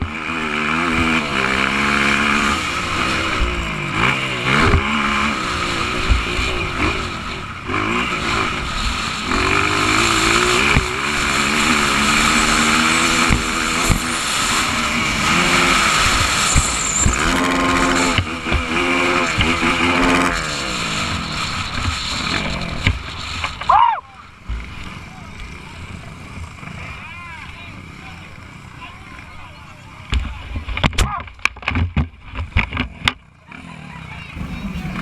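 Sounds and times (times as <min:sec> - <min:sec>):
motorcycle engine revving: 0:00.0 - 0:27.0, 0:32.2 - 0:35.0
wind rushing over microphone: 0:34.4 - 0:35.0.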